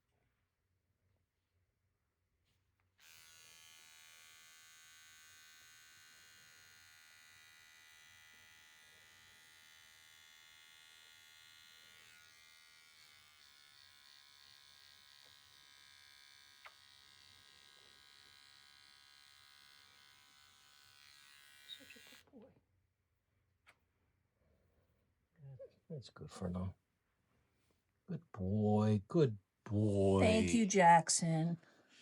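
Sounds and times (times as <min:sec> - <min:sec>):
small electric motor buzzing: 0:03.0 - 0:22.3.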